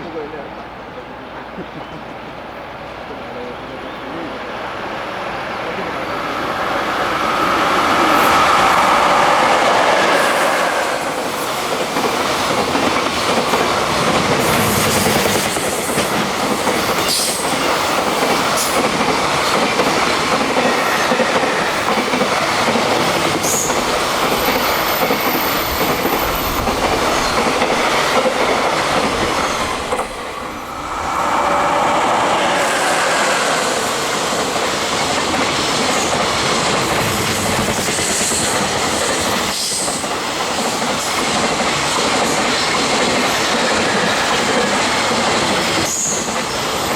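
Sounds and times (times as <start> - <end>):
train wheels clattering on rails: 5.3 - 46.9
train wheel squeal: 19.6 - 28.3, 29.3 - 34.8, 42.4 - 46.9.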